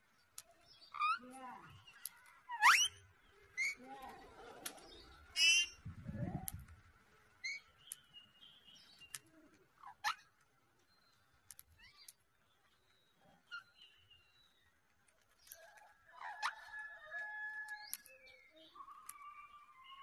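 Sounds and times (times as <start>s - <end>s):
birds chirping and whistling: 0.7s - 3.8s, 4.7s - 6.4s, 7.4s - 9.2s, 10.9s - 14.7s, 15.4s - 20.0s.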